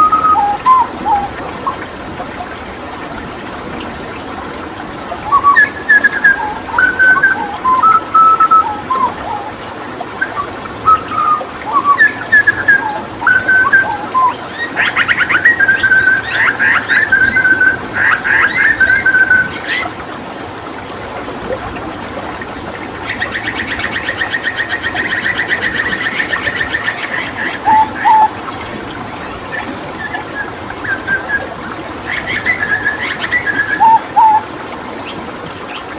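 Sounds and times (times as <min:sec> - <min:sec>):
bird singing: 0:00.0 - 0:01.8, 0:05.2 - 0:09.5, 0:10.2 - 0:19.9, 0:23.0 - 0:28.3, 0:29.2 - 0:35.9
running water trickling: 0:00.0 - 0:35.9.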